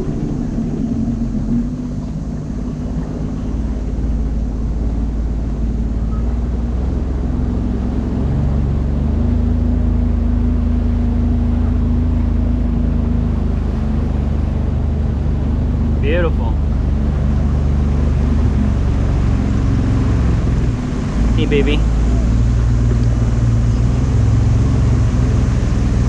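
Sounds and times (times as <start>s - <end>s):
watercraft engine running: 0.0s - 26.0s.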